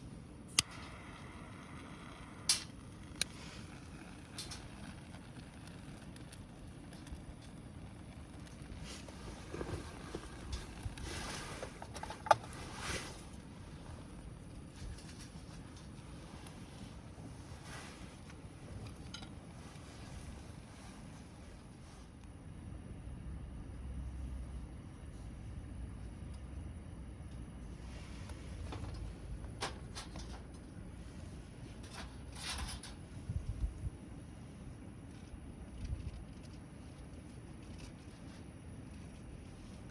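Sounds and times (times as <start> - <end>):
low steady rumble: 0.0 - 39.9
campfire crackling: 0.4 - 23.1.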